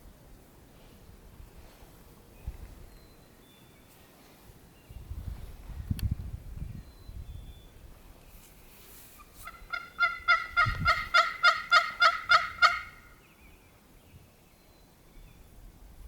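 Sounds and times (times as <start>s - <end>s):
turkey yelping: 9.4s - 13.2s.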